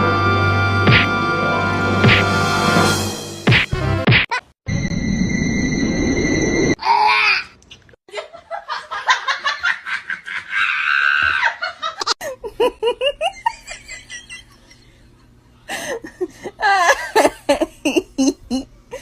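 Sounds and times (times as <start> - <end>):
people laughing: 8.1 - 18.7.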